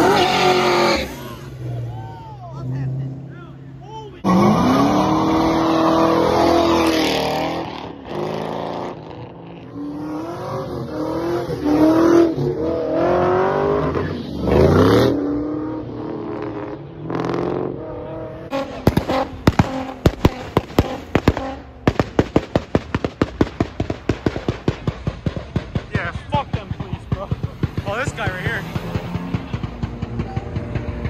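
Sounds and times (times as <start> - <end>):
cars revving while driving past: 0.0 - 31.0
rapid sharp cracks: 18.8 - 30.1.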